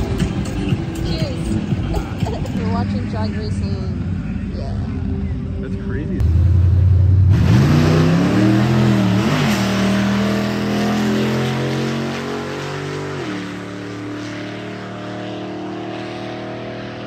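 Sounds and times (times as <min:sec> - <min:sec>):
car engine revving high: 0:06.2 - 0:17.0.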